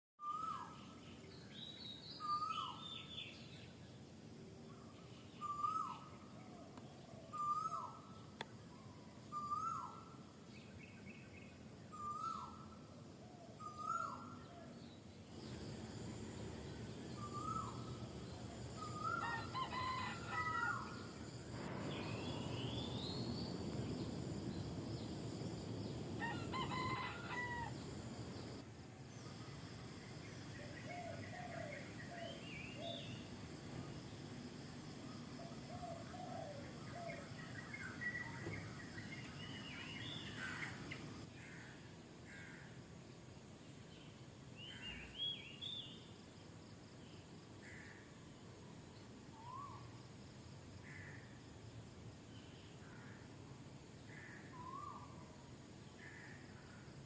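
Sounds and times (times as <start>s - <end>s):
steady hiss: 15.1s - 19.3s, 20.3s - 44.6s.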